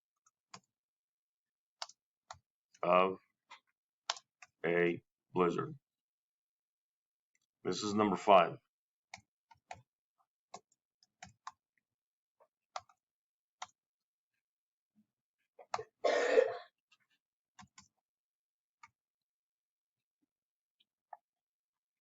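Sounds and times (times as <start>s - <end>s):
person coughing: 16.0s - 16.7s.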